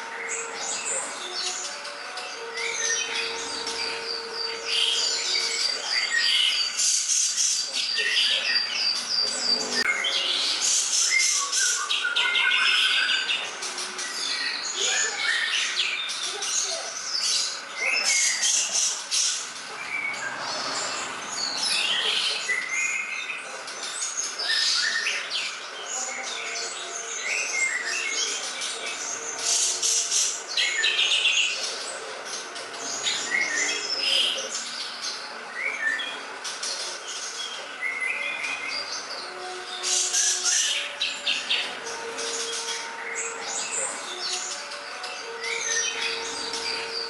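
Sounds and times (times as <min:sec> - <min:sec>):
songbird singing chirps and trills: 0:00.0 - 0:47.0.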